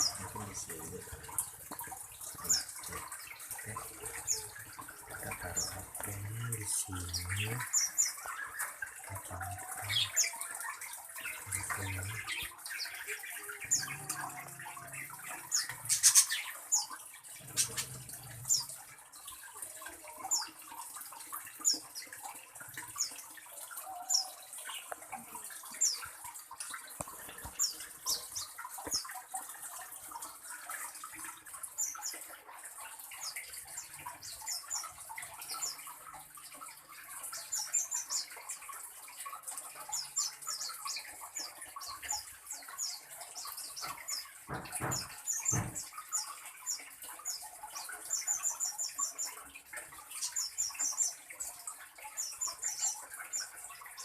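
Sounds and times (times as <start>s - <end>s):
steady water-like hiss: 0.0s - 10.3s
knocks and thuds: 44.5s - 45.9s.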